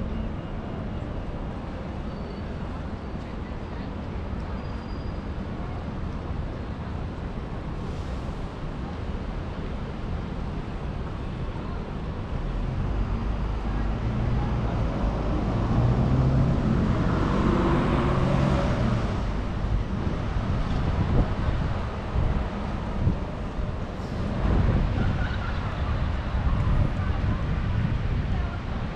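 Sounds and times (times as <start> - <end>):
city traffic noise: 0.0 - 28.9
motor vehicle passing: 15.0 - 19.4.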